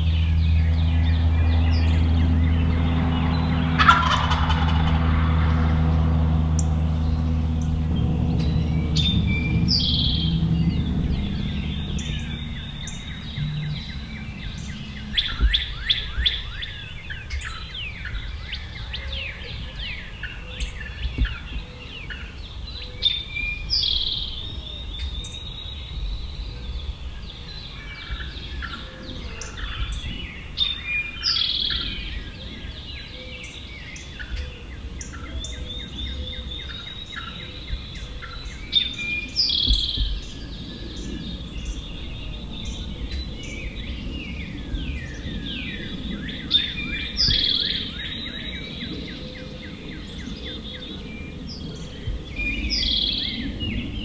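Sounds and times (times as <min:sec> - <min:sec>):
low rumble: 0:00.0 - 0:20.0
songbirds chirping and trilling: 0:00.0 - 0:54.0.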